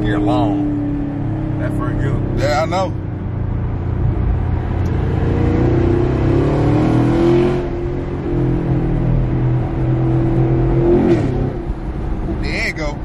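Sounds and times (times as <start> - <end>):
car engine speeding up: 0.0 - 12.6
low rumble: 0.0 - 13.0.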